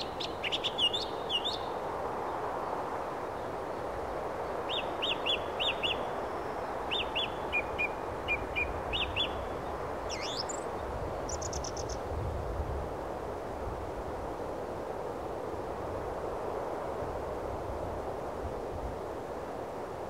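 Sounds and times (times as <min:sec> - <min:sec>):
small birds chirping: 0:00.0 - 0:01.8, 0:04.4 - 0:12.0
steady hiss: 0:00.0 - 0:20.0
bird trill: 0:10.1 - 0:10.6.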